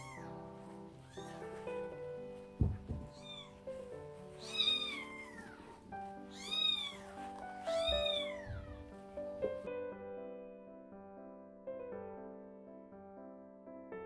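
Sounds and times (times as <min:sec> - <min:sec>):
kitten mewing: 0:00.0 - 0:00.4, 0:04.4 - 0:05.7, 0:06.3 - 0:08.9
low thump: 0:02.6 - 0:03.2.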